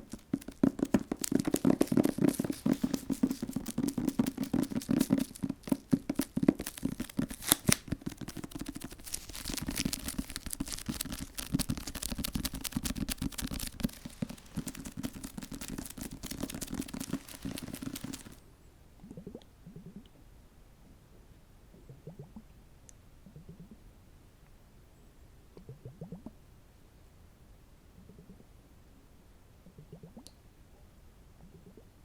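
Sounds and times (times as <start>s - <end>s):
soft touches on microphone: 0.0s - 6.0s, 6.7s - 18.4s
crinkly material crackling: 0.0s - 18.5s.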